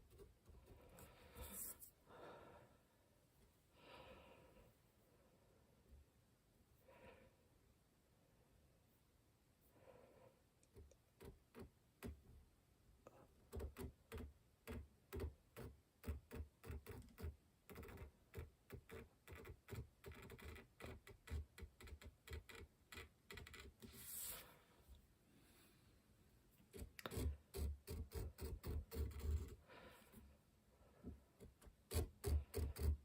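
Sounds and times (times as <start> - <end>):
tool cutting lines into wood: 26.7 - 29.6, 31.6 - 33.0.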